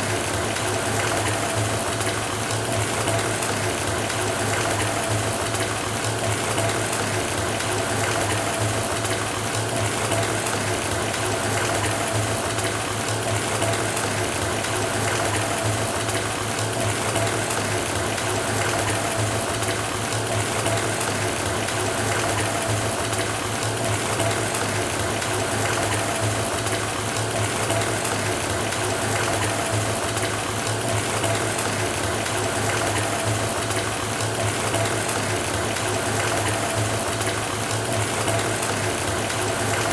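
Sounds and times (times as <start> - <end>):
water pouring into bathtub: 0.0 - 39.9.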